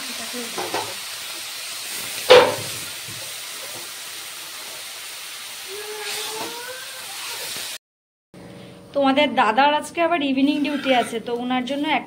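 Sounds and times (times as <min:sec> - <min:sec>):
food sizzling in hot oil: 0:00.0 - 0:07.8.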